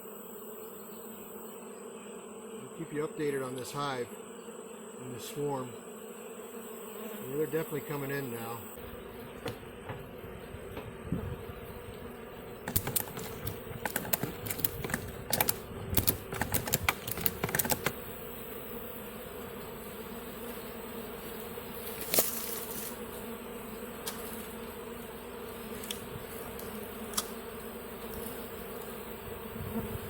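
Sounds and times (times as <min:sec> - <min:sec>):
bee swarm humming: 0:00.0 - 0:30.0
sharp clicks and taps: 0:12.6 - 0:18.0.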